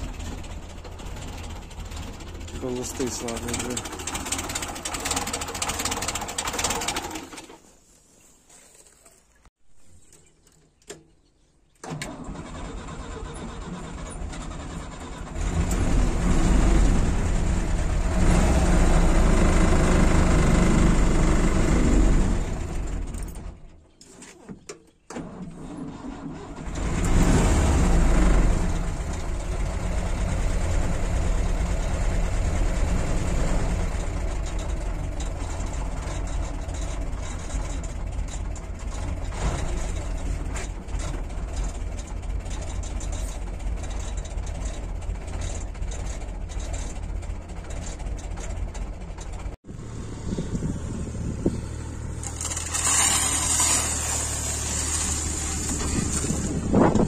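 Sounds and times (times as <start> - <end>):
engine idling: 0.0 - 7.7, 18.8 - 23.6, 28.2 - 57.0
car engine starting and revving: 12.0 - 23.4, 25.2 - 34.7, 49.6 - 57.0.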